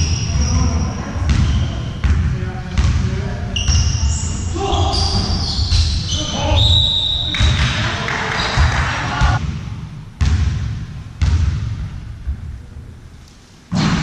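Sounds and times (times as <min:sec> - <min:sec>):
shoes squeaking on court: 0:00.0 - 0:02.1, 0:03.5 - 0:07.5
players' voices: 0:00.0 - 0:09.4.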